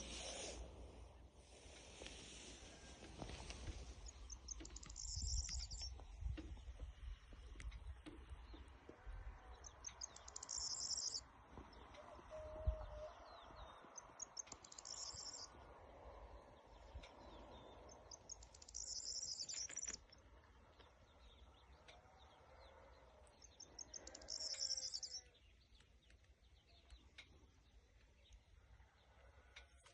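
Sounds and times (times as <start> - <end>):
birds chirping: 2.8 - 12.0, 13.3 - 28.6
songbird trilling: 4.2 - 6.0, 9.8 - 11.2, 14.0 - 15.5, 17.8 - 20.1, 23.5 - 25.3.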